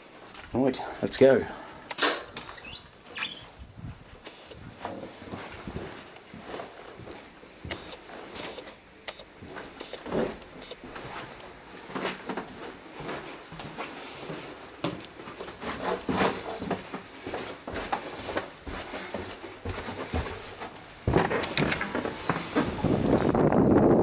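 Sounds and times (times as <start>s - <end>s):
clicks and knocks of handling things: 1.9s - 2.6s, 20.6s - 23.2s.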